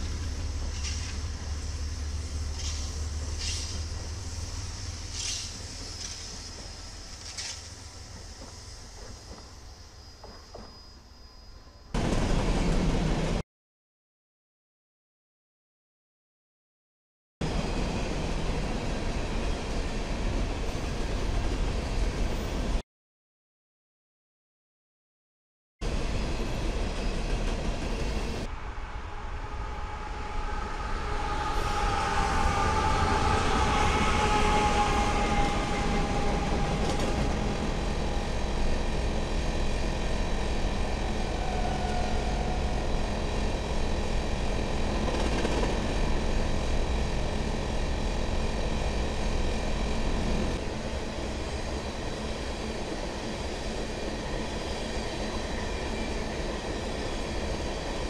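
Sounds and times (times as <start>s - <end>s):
freight train wheels clattering on rail: 0.0s - 1.4s, 2.5s - 3.9s, 34.2s - 38.3s, 44.7s - 46.4s.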